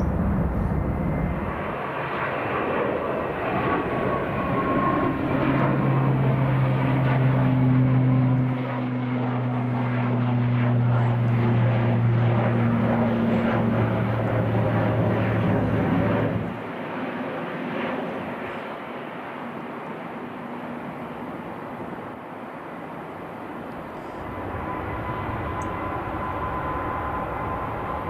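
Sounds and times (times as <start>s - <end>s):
jet engines whining: 0.0s - 28.0s
propeller plane droning: 0.0s - 28.0s.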